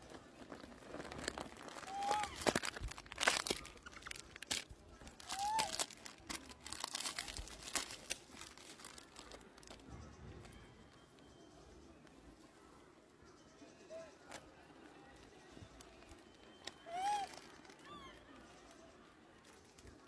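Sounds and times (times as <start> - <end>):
animal crunching food: 0.0 - 10.6.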